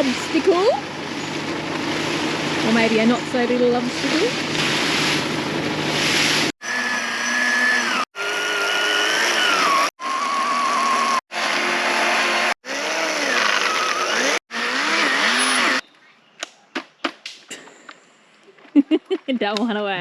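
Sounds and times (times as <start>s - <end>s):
chainsaw cutting log: 5.9s - 15.8s.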